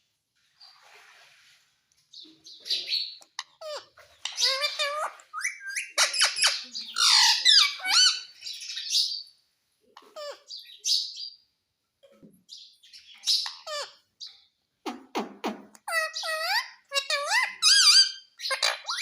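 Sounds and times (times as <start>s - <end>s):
parrot squawking and chattering: 2.6s - 9.3s, 10.0s - 11.2s, 12.9s - 19.0s.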